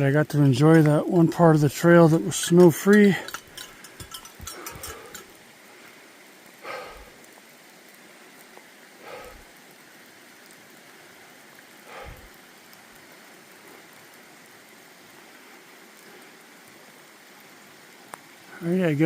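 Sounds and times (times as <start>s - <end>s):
light rain hiss: 0.0s - 19.0s.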